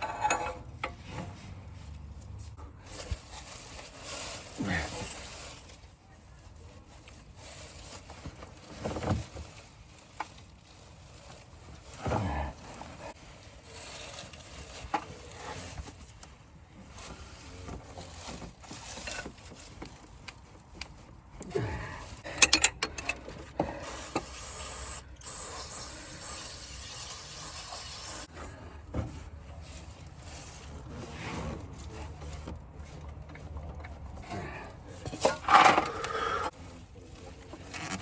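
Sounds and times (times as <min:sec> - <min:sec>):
sharp metallic clinks: 0:22.3 - 0:23.2.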